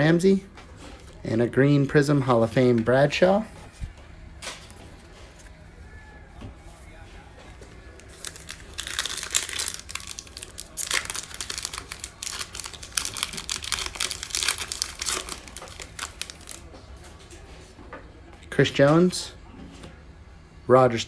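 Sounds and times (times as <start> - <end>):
plastic wrapper crinkling: 7.9 - 16.6.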